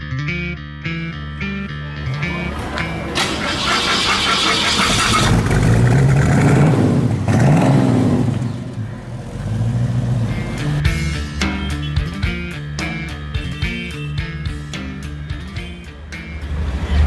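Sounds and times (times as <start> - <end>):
car engine accelerating: 2.1 - 11.0
loud rushing noise: 16.2 - 17.0.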